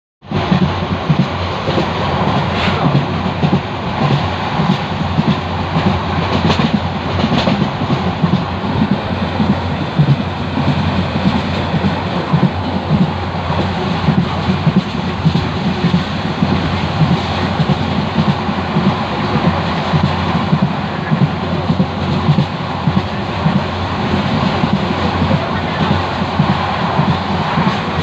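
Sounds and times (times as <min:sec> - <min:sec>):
train rumble inside coach: 0:00.2 - 0:28.0
wheels clattering on rails: 0:00.2 - 0:28.0.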